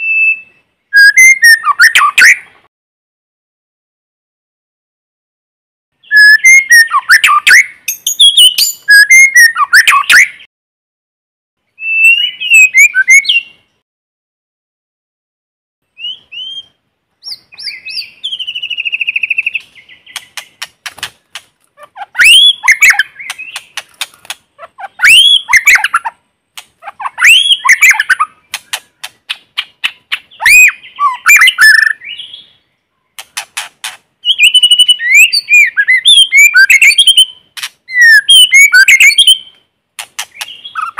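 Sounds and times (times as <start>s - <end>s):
bird singing whistled phrases: 0.0s - 2.5s, 6.0s - 10.5s, 11.8s - 13.6s, 16.0s - 20.2s, 22.2s - 23.6s, 24.9s - 26.0s, 27.0s - 28.3s, 30.3s - 32.6s, 34.2s - 39.6s
fast buzzy bird trill: 6.0s - 10.5s, 17.2s - 26.1s, 26.8s - 32.0s, 33.2s - 39.4s
sharp clicking bird notes: 19.4s - 21.7s, 22.3s - 24.5s, 26.5s - 26.8s, 27.9s - 30.3s, 33.1s - 34.0s, 38.4s - 40.9s.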